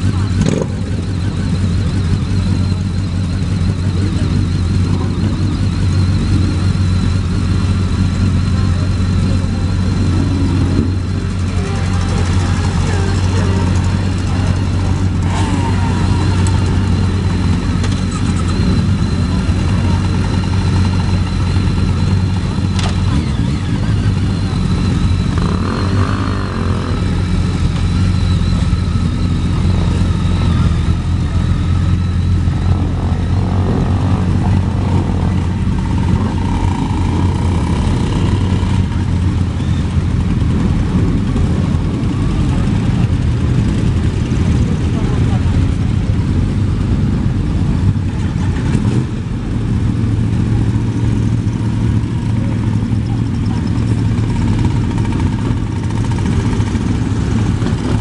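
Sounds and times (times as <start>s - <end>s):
many motorcycle engines running: 0.0s - 58.0s.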